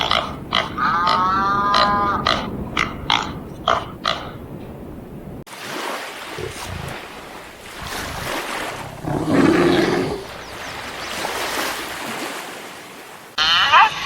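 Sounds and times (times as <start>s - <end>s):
large animal roaring: 8.6s - 10.4s.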